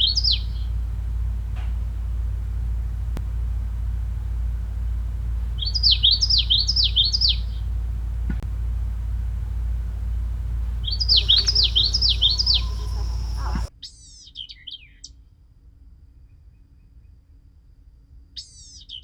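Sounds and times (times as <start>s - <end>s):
songbird singing: 0.0s - 13.7s
steady low rumble: 0.0s - 13.7s.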